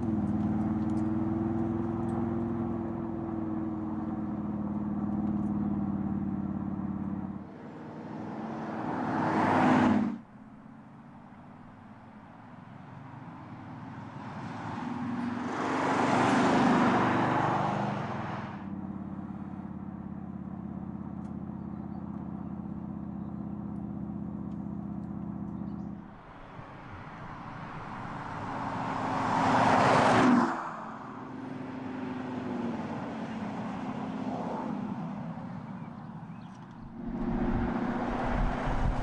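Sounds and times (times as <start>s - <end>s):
low engine drone: 36.3s - 39.0s
car driving past: 36.6s - 39.0s.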